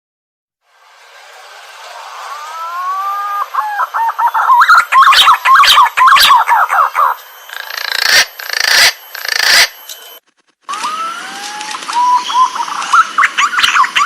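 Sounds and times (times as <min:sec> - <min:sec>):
harsh hissing call: 0:01.1 - 0:10.2
pigeon whistling call: 0:02.3 - 0:09.7, 0:10.8 - 0:14.0.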